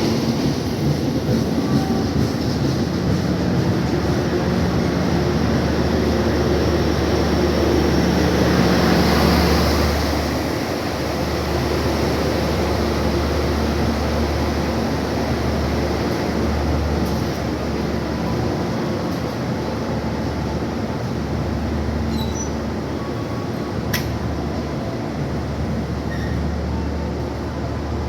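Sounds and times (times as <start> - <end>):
train passing: 0.0 - 28.0.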